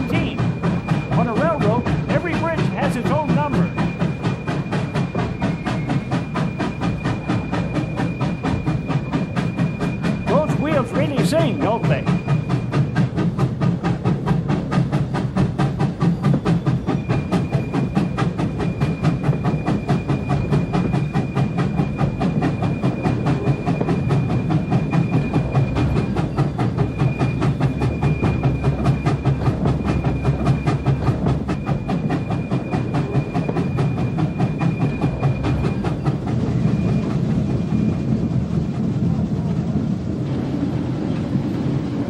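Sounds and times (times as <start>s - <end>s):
steam locomotive knocks and chuffs: 0.0s - 42.0s
wheels squealing high: 0.0s - 42.0s
low rumble: 11.1s - 42.0s.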